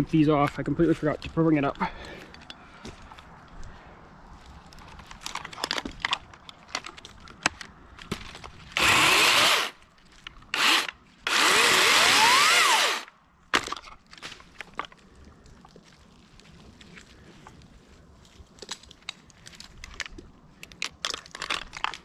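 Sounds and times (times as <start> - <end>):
wood cracking and clicking: 4.7 - 11.0, 18.5 - 22.0
chainsaw cutting branches: 8.8 - 9.8, 10.5 - 13.1.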